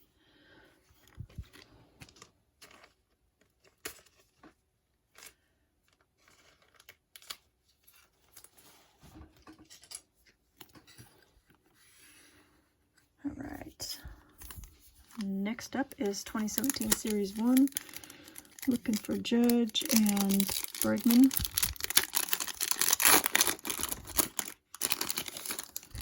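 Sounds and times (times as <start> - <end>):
wrappers rustling: 14.4 - 26.0.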